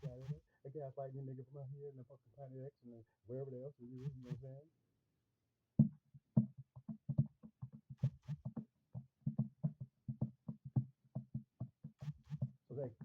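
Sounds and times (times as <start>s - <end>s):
rapid short knocks: 5.8s - 12.6s.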